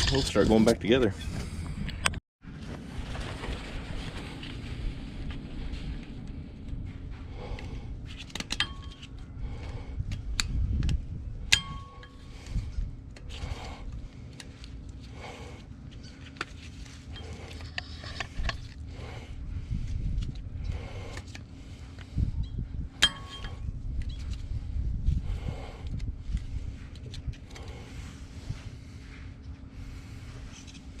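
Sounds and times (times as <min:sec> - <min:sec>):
low hum: 0:00.0 - 0:31.0
metal tools clinking: 0:23.0 - 0:23.6.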